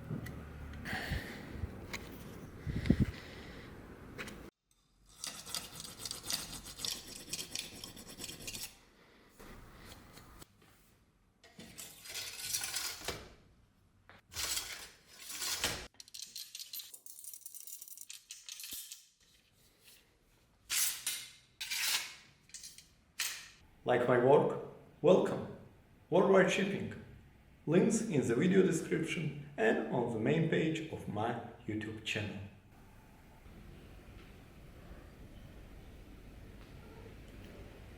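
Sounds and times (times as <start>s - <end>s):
scraping and rubbing on metal: 5.1s - 8.8s, 20.7s - 22.3s
small metal parts clinking: 11.6s - 13.1s, 14.4s - 19.2s.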